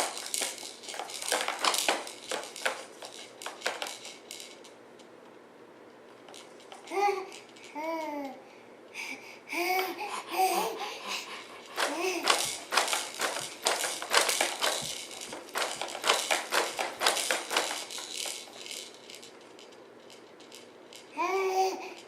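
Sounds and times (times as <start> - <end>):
toy tapping and clattering: 0.0 - 5.4, 6.1 - 8.4, 9.6 - 22.0.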